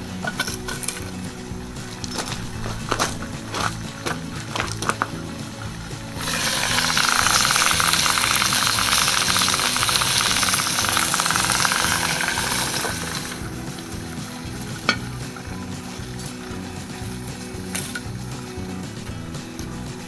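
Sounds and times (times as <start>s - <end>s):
chicken sizzling in a pot: 0.0s - 20.0s.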